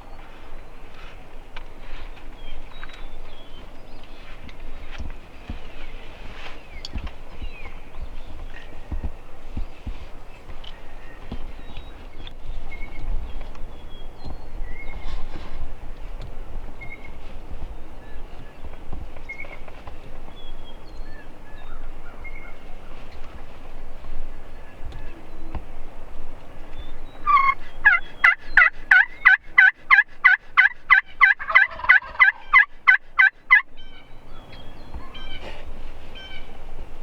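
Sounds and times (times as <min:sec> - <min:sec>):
songbird chirps: 0:00.0 - 0:37.0
turkey yelping: 0:27.2 - 0:34.0.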